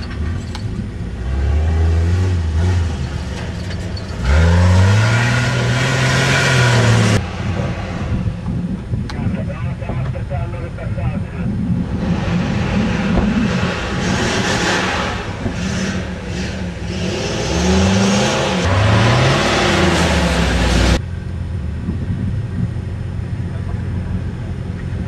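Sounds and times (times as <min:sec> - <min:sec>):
off-road engine revving: 0:00.0 - 0:10.8, 0:11.4 - 0:21.1
rushing noise: 0:00.0 - 0:21.1
low rumble and hiss: 0:07.2 - 0:12.0.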